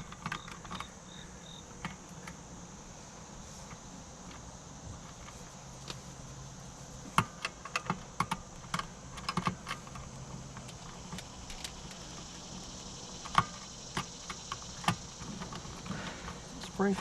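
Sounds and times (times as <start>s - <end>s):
hard objects clicking and knocking: 0.0s - 1.0s.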